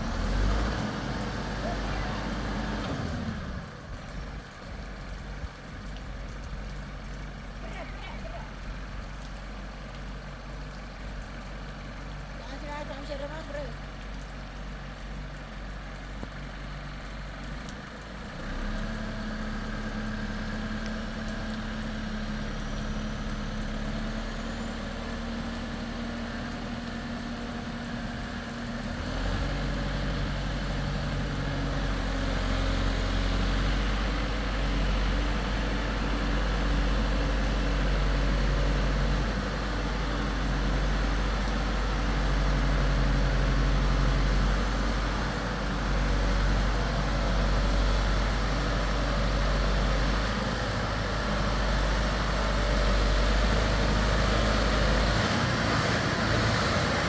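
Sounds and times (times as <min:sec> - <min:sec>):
motor engine running: 0:00.0 - 0:09.2.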